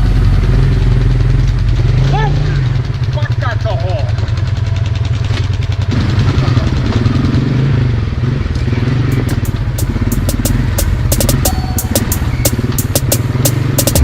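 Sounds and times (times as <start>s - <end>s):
atv engine running: 0.0s - 14.0s
sharp clicks: 8.6s - 14.0s.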